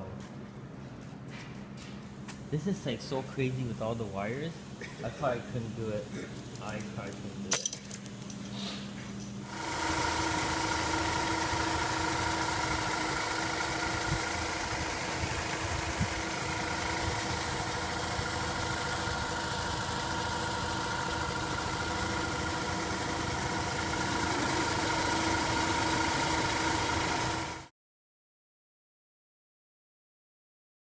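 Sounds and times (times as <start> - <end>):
rotary engine idling: 9.5 - 27.6.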